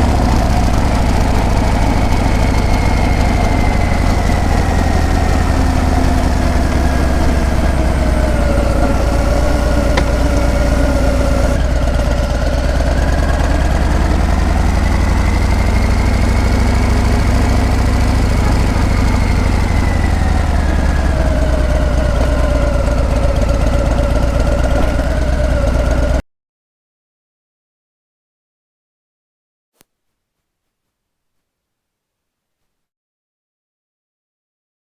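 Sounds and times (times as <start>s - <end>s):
motorcycle engine rumbling: 0.0s - 11.6s, 12.4s - 26.0s.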